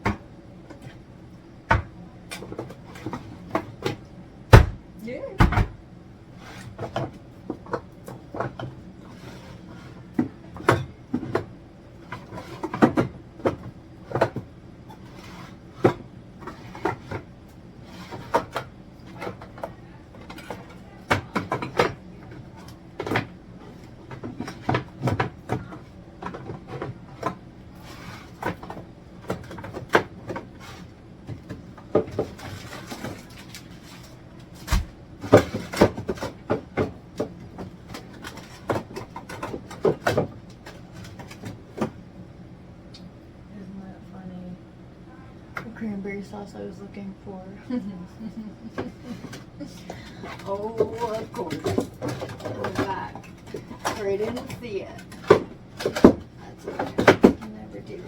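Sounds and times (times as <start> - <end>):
refrigerator hum: 0.0 - 58.0
jars and bottles clattering: 48.8 - 58.0.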